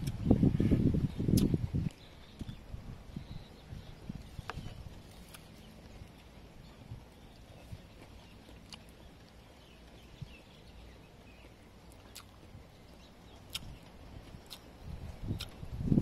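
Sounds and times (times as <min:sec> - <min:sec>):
crunching bites and chewing: 0:01.1 - 0:02.6, 0:04.2 - 0:06.4, 0:07.2 - 0:09.4, 0:11.3 - 0:15.6.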